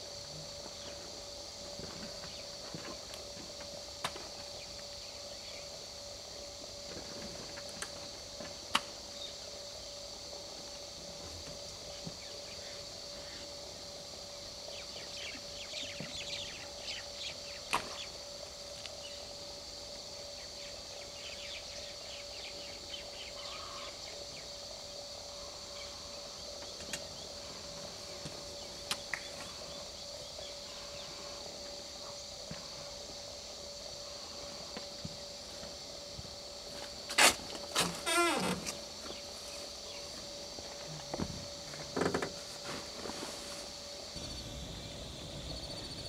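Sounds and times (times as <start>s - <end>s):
steady hum: 38.6s - 46.0s.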